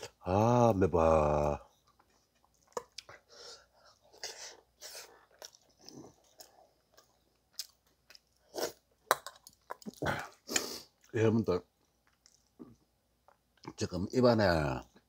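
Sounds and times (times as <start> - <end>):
chewing and mouth noises: 1.7 - 11.2, 11.8 - 13.7.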